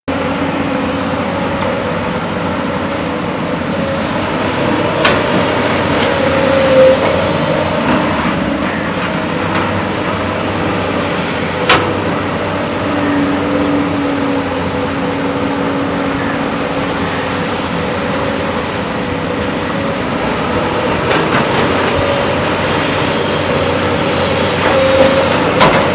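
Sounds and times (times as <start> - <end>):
excavator diesel engine running: 0.0 - 25.9
sharp metallic knocks: 11.5 - 12.8.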